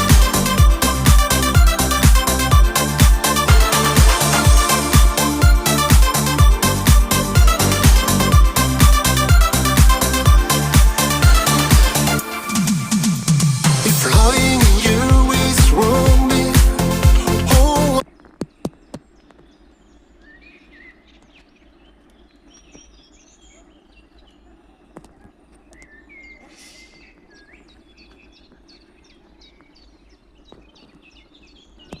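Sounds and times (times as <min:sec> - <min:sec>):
upbeat dance music: 0:00.0 - 0:18.0
small birds chirping: 0:14.0 - 0:32.0.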